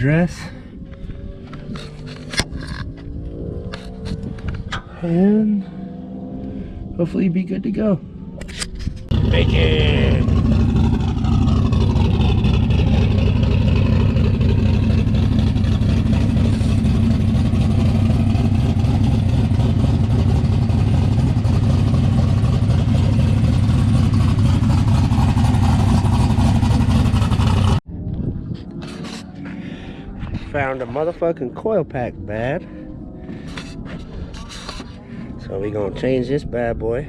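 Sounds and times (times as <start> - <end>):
car engine running loud: 9.0 - 27.8.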